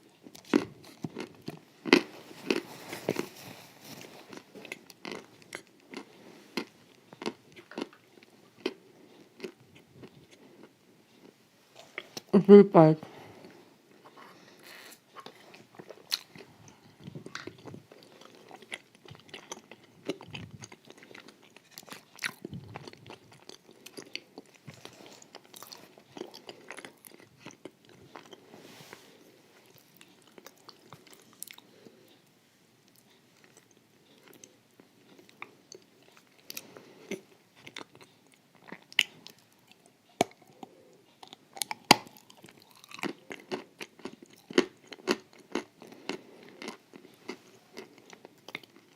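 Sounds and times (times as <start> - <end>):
person chewing crunchy food: 0.0 - 12.3, 13.2 - 32.1, 32.9 - 48.9.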